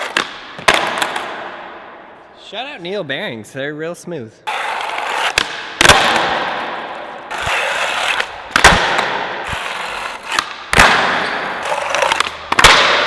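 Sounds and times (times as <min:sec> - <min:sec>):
skateboard rolling on pavement: 0:04.5 - 0:05.4, 0:06.1 - 0:08.3, 0:09.0 - 0:10.4, 0:11.2 - 0:12.4
skateboard clacks: 0:04.5 - 0:13.0.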